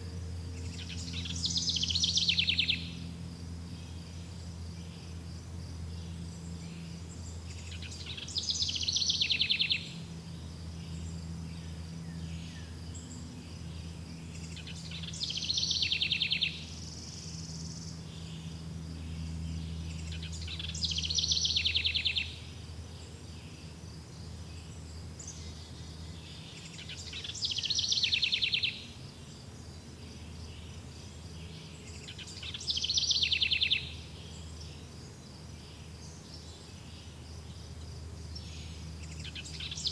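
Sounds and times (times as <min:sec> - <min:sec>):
high insect drone: 0:00.0 - 0:39.9
low background hum: 0:00.0 - 0:39.9
songbird trilling: 0:00.6 - 0:03.0, 0:07.4 - 0:10.1, 0:14.2 - 0:18.5, 0:19.6 - 0:22.5, 0:25.2 - 0:29.0, 0:31.5 - 0:34.9, 0:38.3 - 0:39.9.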